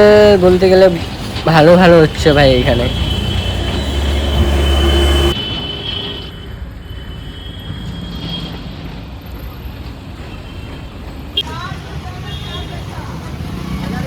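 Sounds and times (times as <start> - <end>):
loud low engine rumble: 0.0 - 5.4
traffic noise: 0.0 - 14.0.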